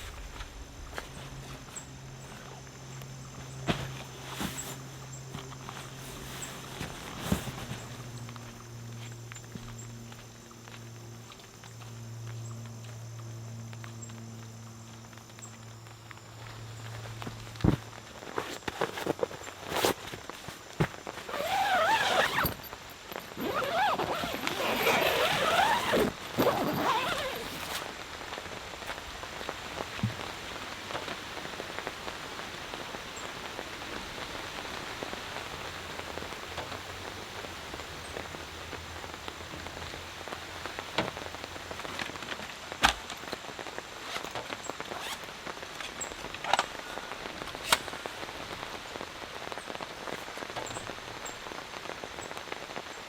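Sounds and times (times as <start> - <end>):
steady rain: 19.4 - 53.0.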